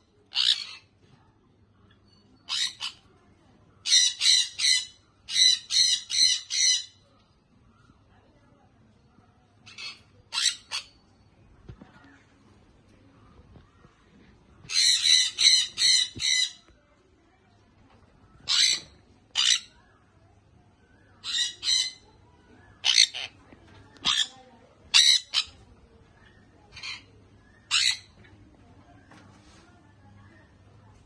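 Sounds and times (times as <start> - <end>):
parrot squawking: 0.3 - 0.8, 3.8 - 7.0, 9.7 - 11.0, 14.7 - 16.6, 18.4 - 19.8, 21.2 - 22.1, 22.8 - 23.4, 24.0 - 25.6, 27.7 - 28.2.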